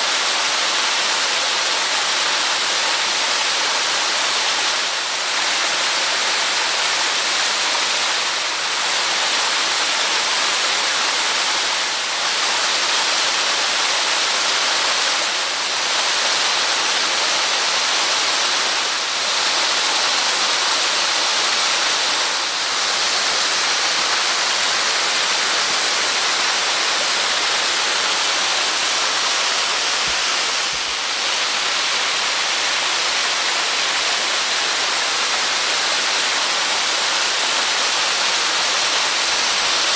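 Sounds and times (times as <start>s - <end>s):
waterfall rushing: 0.1s - 39.9s.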